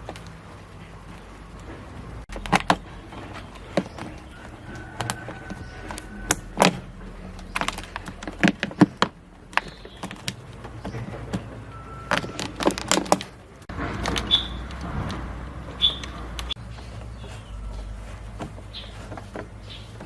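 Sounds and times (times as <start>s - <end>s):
bird chirping: 9.5s - 12.6s, 14.1s - 14.8s, 15.6s - 20.0s.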